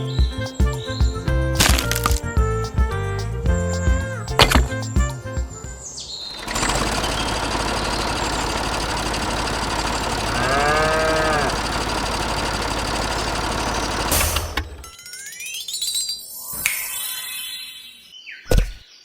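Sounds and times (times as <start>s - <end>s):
small motor rattling: 6.3s - 15.0s
cow mooing: 10.1s - 11.8s.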